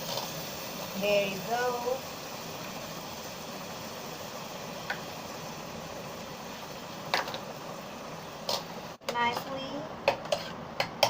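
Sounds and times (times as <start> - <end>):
vegetables sizzling: 0.0 - 11.0.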